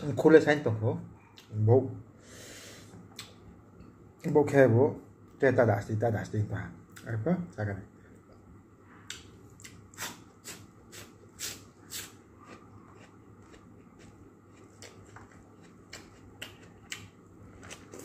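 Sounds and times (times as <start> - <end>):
crunchy chewing of raw vegetable: 9.1 - 18.0.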